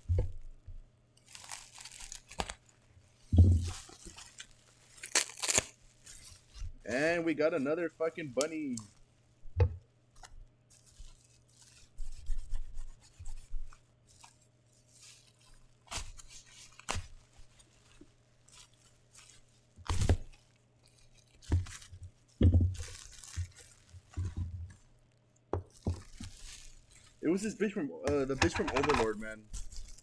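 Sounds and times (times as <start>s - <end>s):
cardboard tearing and rustling: 1.3s - 7.1s, 15.0s - 22.0s, 22.7s - 24.8s, 25.7s - 30.0s
knocks and clicks: 28.1s - 29.1s.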